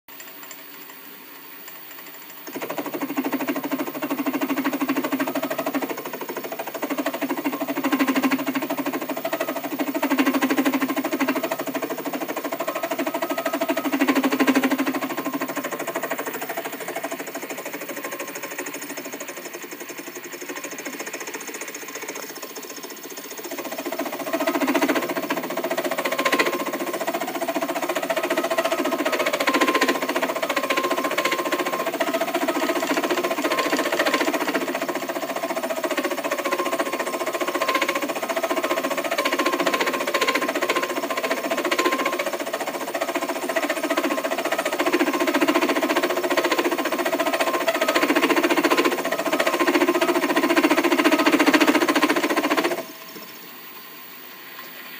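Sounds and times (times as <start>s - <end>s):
machine whine and clatter: 0.1s - 53.9s
faint hum: 0.1s - 54.9s.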